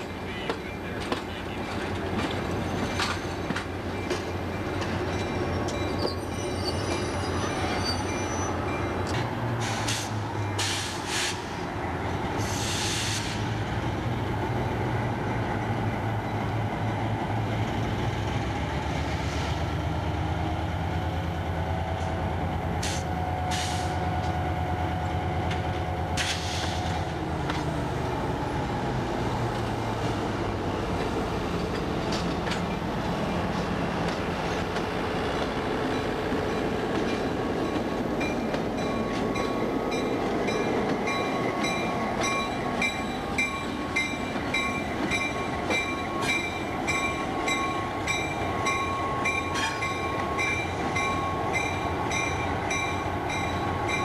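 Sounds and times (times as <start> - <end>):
wheel squeal: 5.4 - 8.6.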